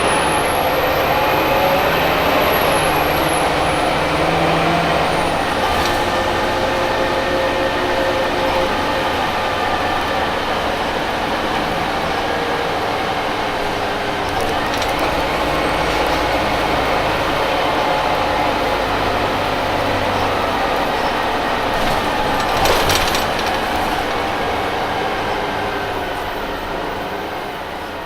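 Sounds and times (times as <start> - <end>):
bus engine running: 0.0 - 28.0
rattling clatter: 14.1 - 16.8, 21.6 - 24.6.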